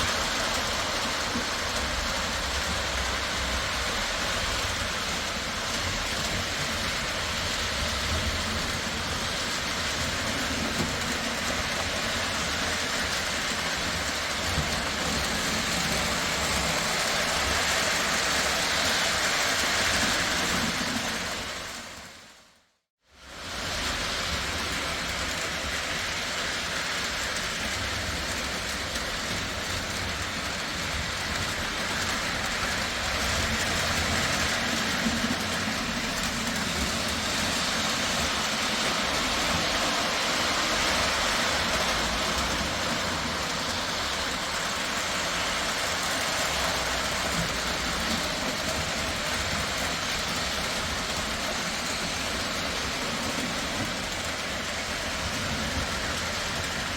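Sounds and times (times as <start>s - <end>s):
model train rumbling along track: 0.0s - 56.9s.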